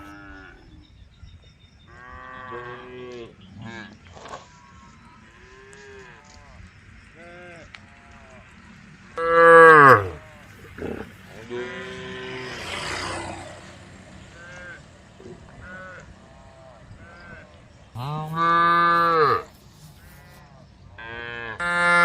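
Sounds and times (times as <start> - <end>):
cows mooing: 9.2 - 13.6, 14.3 - 20.4, 21.0 - 22.0.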